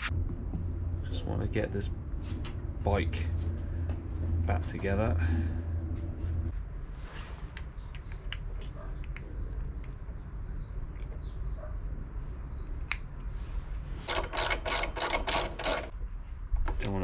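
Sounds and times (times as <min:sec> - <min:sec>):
ratchet spanner tightening: 0:14.0 - 0:15.9.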